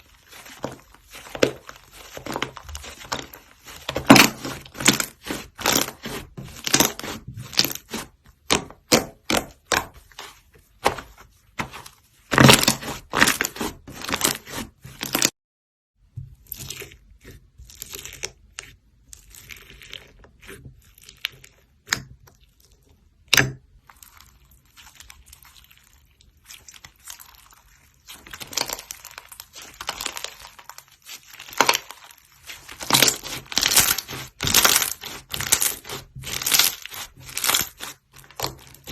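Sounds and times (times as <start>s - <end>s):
slime crackling and popping: 23.4s - 38.9s.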